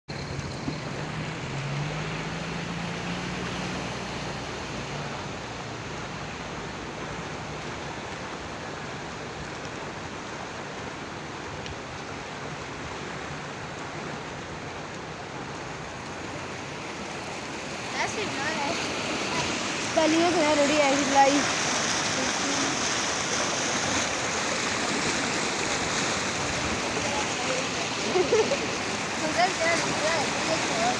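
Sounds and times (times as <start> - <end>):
low engine hum: 0.1 - 11.4, 12.1 - 30.9
floodwater rushing: 0.1 - 30.9.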